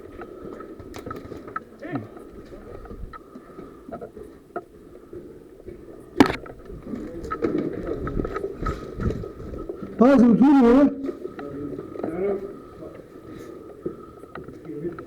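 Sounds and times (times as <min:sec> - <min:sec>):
sharp crack: 0:06.2 - 0:06.7.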